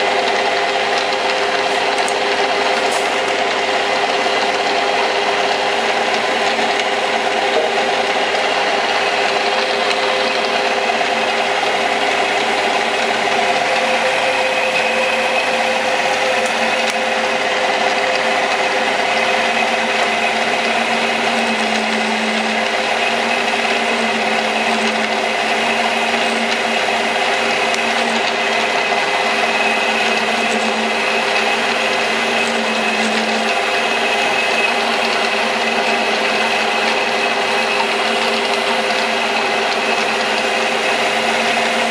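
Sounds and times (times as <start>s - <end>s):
metal lathe whining: 0.0s - 41.9s.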